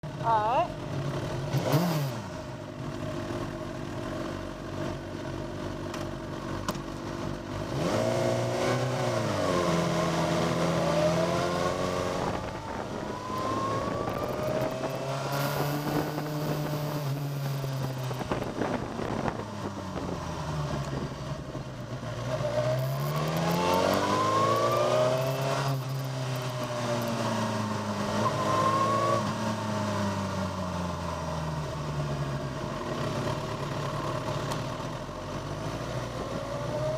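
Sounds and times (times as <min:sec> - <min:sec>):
motorcycle engine revving: 0:00.0 - 0:06.0, 0:06.6 - 0:36.9
wind noise: 0:11.8 - 0:21.8.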